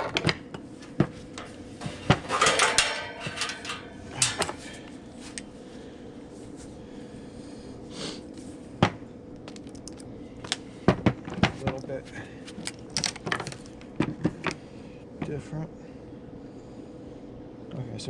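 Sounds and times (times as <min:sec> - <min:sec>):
faint steady hum: 0:00.0 - 0:18.0
metal parts and tools clicking: 0:01.4 - 0:04.8.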